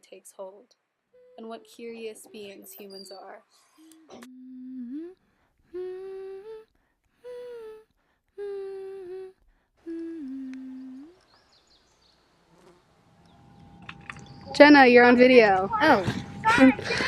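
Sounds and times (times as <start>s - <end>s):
person humming a slow tune: 4.0s - 11.2s.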